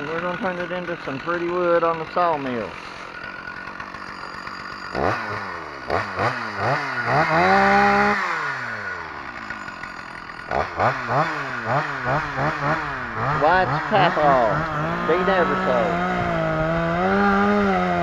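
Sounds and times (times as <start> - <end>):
chainsaw revving: 0.0 - 18.0.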